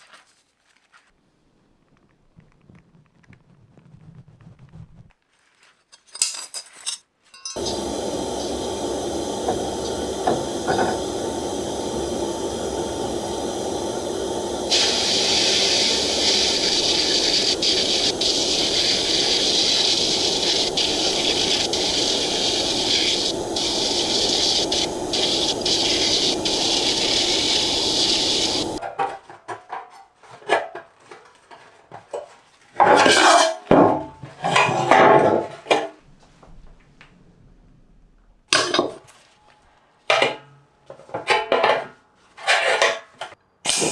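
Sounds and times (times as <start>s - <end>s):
steady hissing machine: 7.6s - 28.8s.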